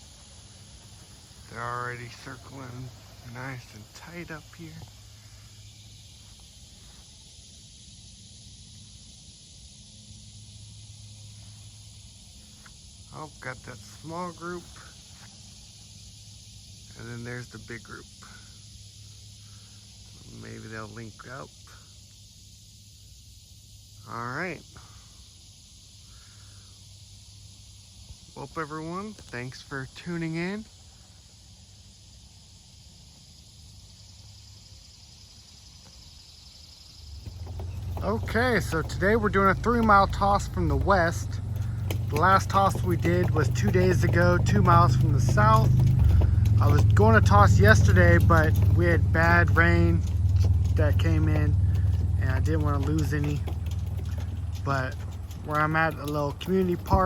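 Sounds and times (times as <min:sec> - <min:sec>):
insects chirring: 0:00.0 - 0:57.0
low steady hum: 0:25.8 - 0:57.0.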